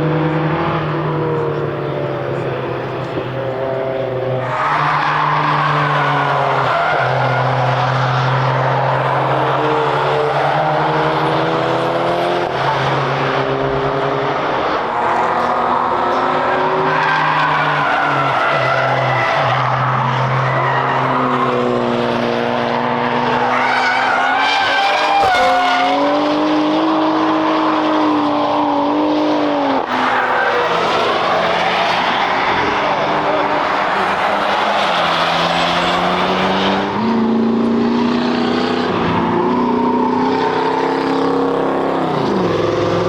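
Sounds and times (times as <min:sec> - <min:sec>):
race cars engines revving: 0:00.0 - 0:43.0
tyre squeal: 0:23.4 - 0:26.2, 0:29.9 - 0:36.7.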